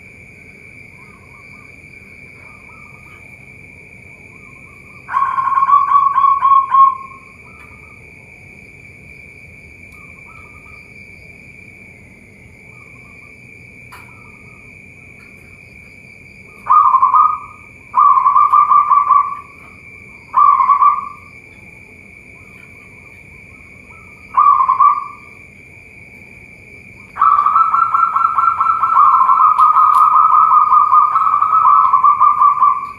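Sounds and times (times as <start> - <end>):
steady high-pitched whine: 0.0 - 32.9
doves cooing: 1.0 - 8.2, 16.4 - 25.6, 26.2 - 32.9.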